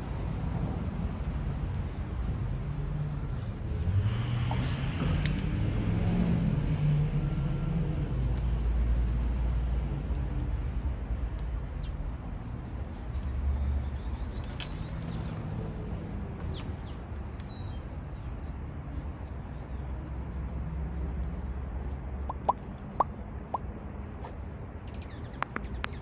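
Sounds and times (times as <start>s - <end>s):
bird chirps: 10.6s - 15.8s, 22.2s - 23.6s, 24.8s - 26.0s.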